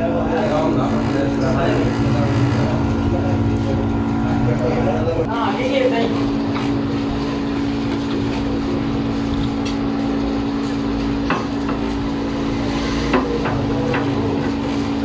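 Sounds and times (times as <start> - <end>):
machine humming: 0.0 - 5.6.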